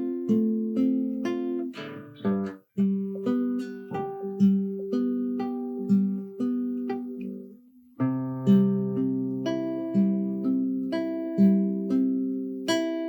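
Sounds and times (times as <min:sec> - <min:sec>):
plucked guitar notes and chords: 0:00.0 - 0:13.0.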